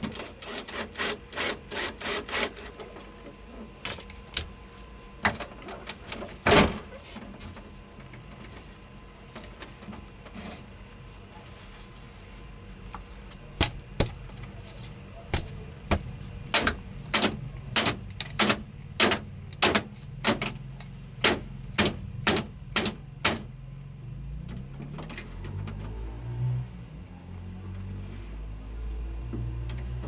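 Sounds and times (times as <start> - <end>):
low steady hum: 2.6 - 25.9.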